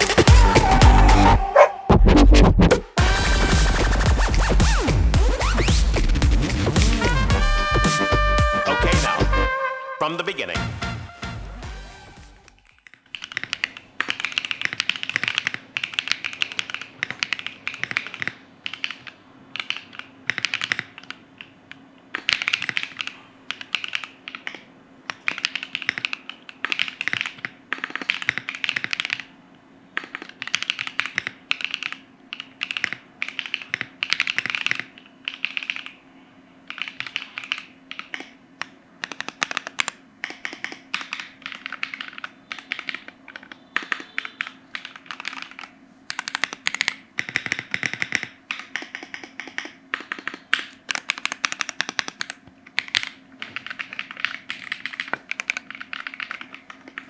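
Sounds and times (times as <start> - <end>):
faint steady hum: 11.7 - 57.0
mechanical keyboard typing: 12.5 - 36.0, 36.6 - 57.0.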